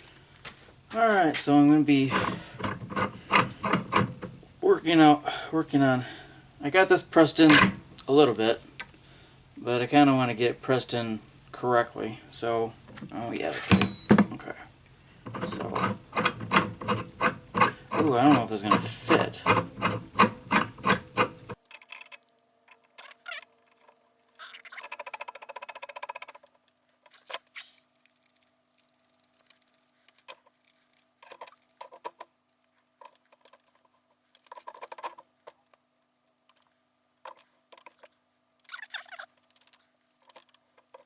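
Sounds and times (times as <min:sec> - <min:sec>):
tools scraping: 0:15.3 - 0:35.8, 0:36.5 - 0:41.0
faint metal clicks and knocks: 0:21.6 - 0:41.0
ratchet wrench clicking: 0:24.4 - 0:32.2.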